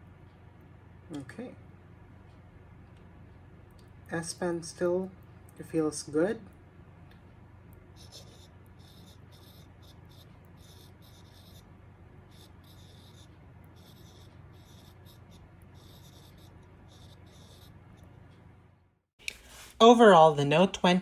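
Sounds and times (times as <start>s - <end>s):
low hum: 0.0s - 19.0s
stylus scratching on glass screen: 7.9s - 18.1s.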